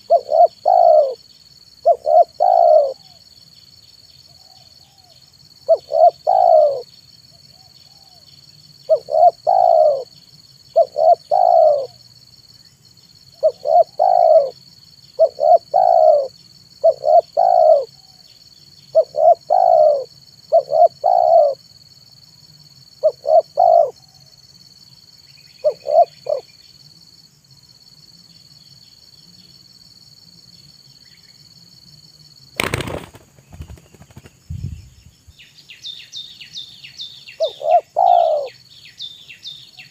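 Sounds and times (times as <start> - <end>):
dove cooing: 0.0 - 1.2, 1.8 - 3.2, 5.7 - 6.9, 8.9 - 10.1, 10.8 - 12.0, 13.4 - 14.6, 15.2 - 18.2, 18.9 - 21.6, 23.0 - 24.2, 25.6 - 26.5, 37.4 - 38.6.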